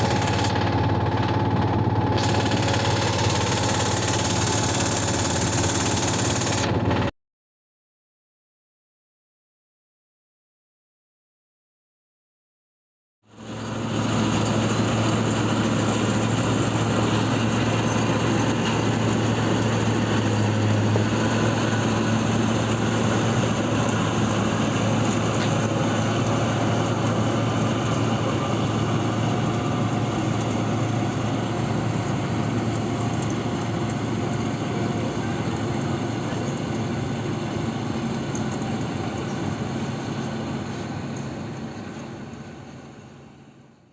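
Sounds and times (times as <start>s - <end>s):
passenger train running: 13.4s - 43.2s.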